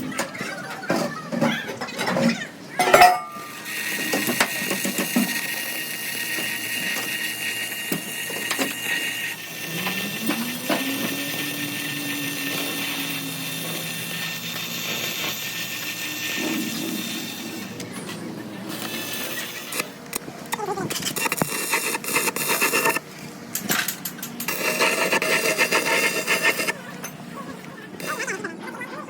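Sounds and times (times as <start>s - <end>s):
machine high whine: 2.1s - 28.9s
motor tone rising: 6.2s - 21.1s.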